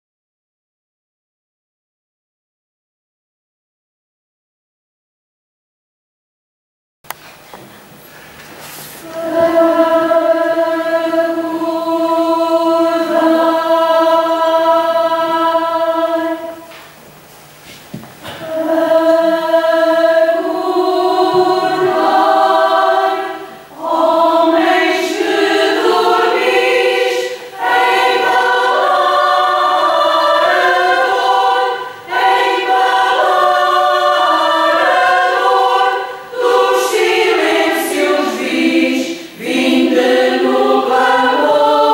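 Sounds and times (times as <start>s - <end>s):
choir singing: 9.0s - 16.7s, 18.2s - 41.9s.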